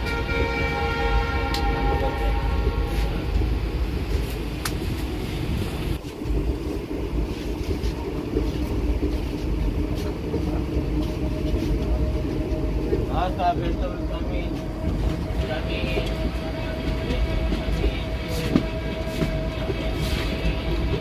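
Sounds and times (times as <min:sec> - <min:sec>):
locomotive horn: 0:00.0 - 0:03.3
passenger train rumble: 0:00.0 - 0:21.0.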